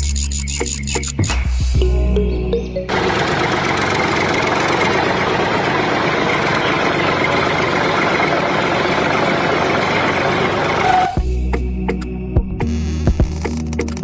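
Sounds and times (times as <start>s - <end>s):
diesel engine running: 2.8s - 11.2s.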